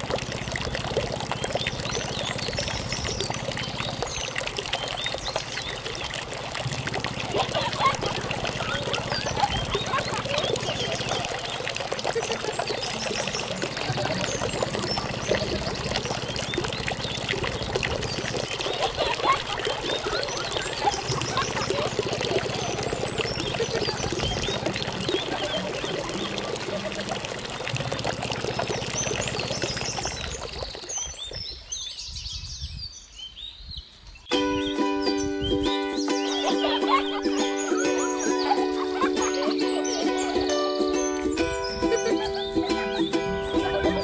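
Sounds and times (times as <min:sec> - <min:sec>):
water pouring into a puddle: 0:00.0 - 0:31.7, 0:35.6 - 0:44.0
low hum: 0:06.6 - 0:30.4.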